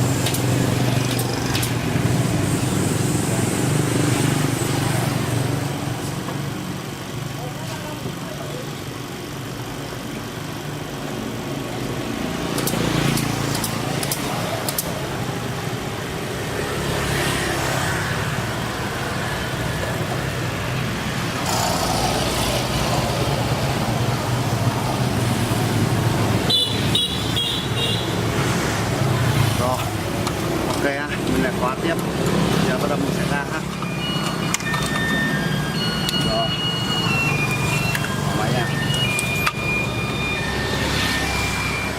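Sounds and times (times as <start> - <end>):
traffic-like noise: 0.0 - 41.9
sharp clicks: 12.6 - 15.0
high beeps: 33.1 - 41.9.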